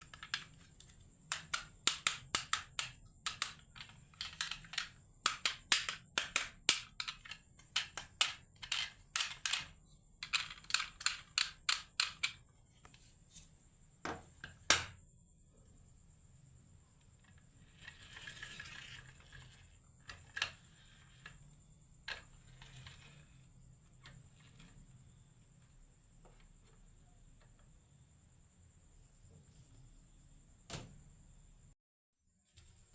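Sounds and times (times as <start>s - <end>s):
marbles clacking down wooden run: 0.0s - 12.4s
marbles rolling rush: 17.8s - 19.6s.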